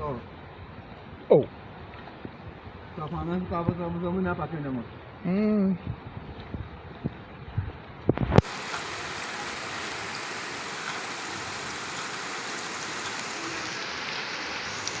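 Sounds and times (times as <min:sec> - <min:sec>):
water rushing: 0:08.4 - 0:15.0.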